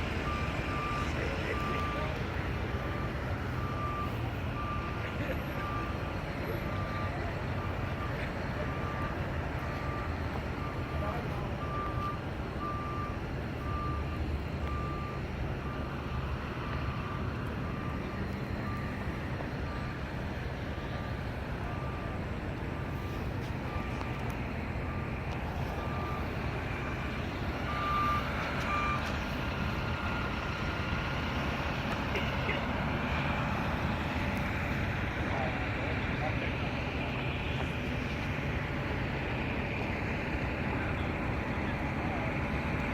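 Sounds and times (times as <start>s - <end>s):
truck engines idling: 0.0s - 42.9s
reverse alarm beeping: 0.2s - 20.2s, 24.9s - 29.1s.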